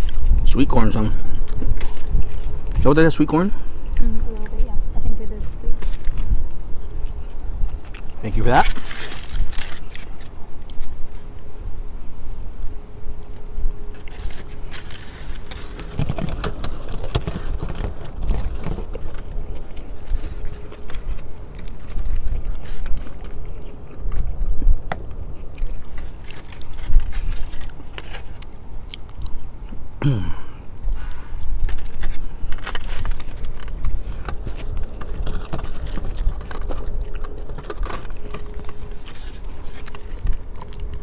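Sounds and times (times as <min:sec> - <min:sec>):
chewing and biting food: 0:00.0 - 0:11.5, 0:12.7 - 0:41.0.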